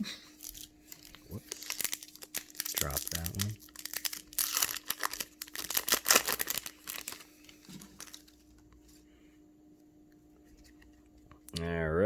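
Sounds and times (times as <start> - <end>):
plastic wrapper crinkling and tearing: 0.4 - 8.4.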